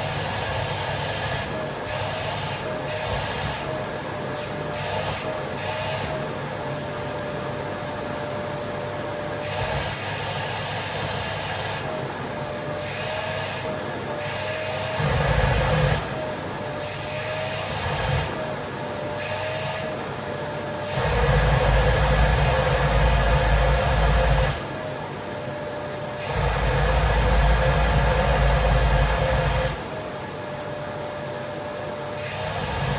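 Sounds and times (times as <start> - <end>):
vacuum cleaner running: 0.0 - 32.9.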